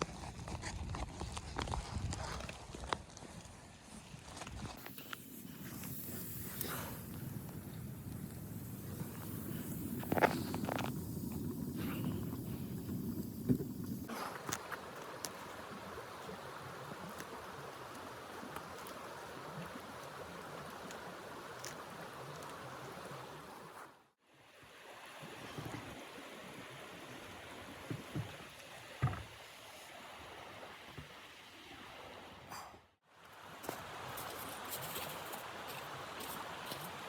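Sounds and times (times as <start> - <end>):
blizzard wind rushing: 5.1 - 14.1.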